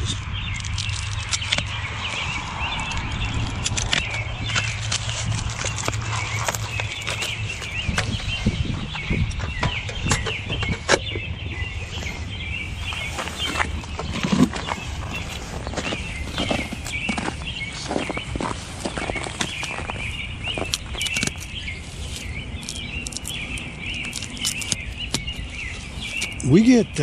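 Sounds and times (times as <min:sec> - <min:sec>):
small birds chirping: 0:00.0 - 0:27.0
sharp clicks: 0:02.8 - 0:08.2, 0:22.2 - 0:25.4.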